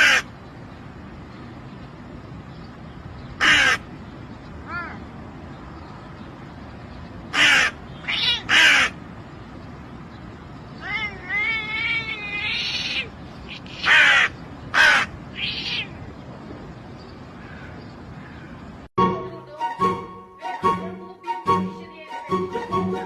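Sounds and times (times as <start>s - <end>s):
harsh animal calls: 10.8s - 16.0s.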